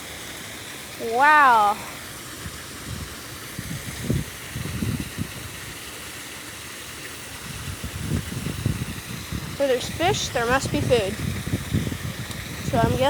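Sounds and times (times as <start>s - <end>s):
waterfall rushing: 0.0s - 4.9s, 8.0s - 13.0s.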